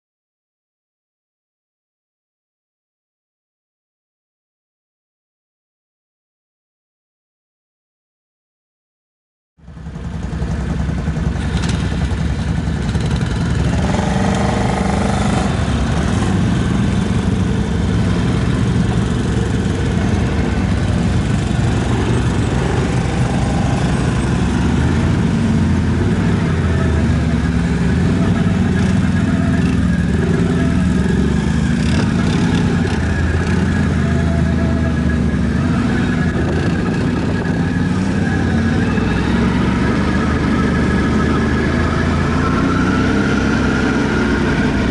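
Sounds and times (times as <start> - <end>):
atv engine running: 9.6 - 44.9.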